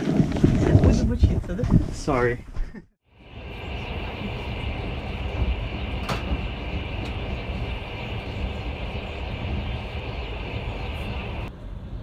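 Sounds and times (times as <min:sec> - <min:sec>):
train carriage rumble and hiss: 0:03.1 - 0:12.0.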